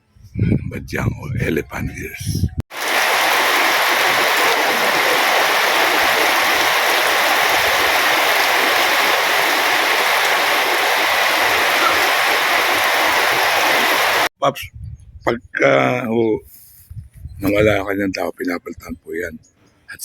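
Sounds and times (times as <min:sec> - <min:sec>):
steady rushing noise: 0:02.7 - 0:14.3.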